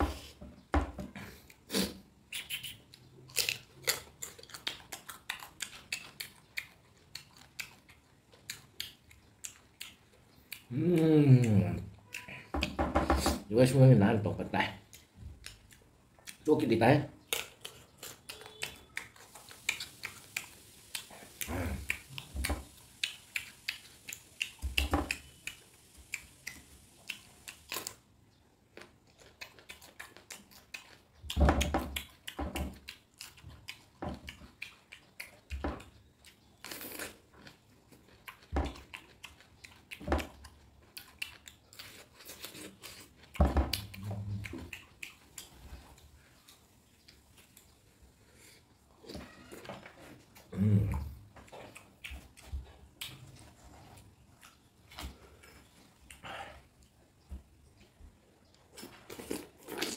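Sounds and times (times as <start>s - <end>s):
chewing crunchy fruit: 1.2s - 12.8s, 14.5s - 59.9s
wet mouth sounds: 1.3s - 12.8s, 17.2s - 28.0s, 38.2s - 46.6s, 50.2s - 56.9s.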